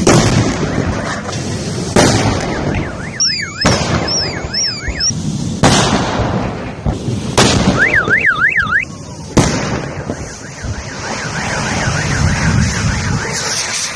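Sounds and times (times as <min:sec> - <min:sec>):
explosions: 0:00.0 - 0:13.9
car alarm warbling: 0:02.4 - 0:05.2, 0:07.8 - 0:08.9, 0:10.1 - 0:13.8.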